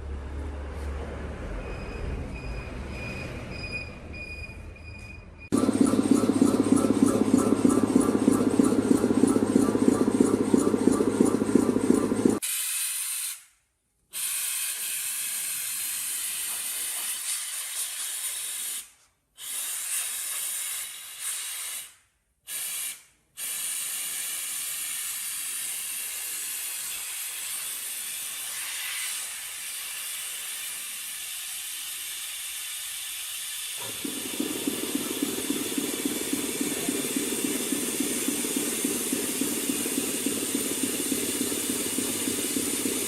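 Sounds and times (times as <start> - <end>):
compressed air spray hissing: 12.4 - 13.5, 14.1 - 43.0.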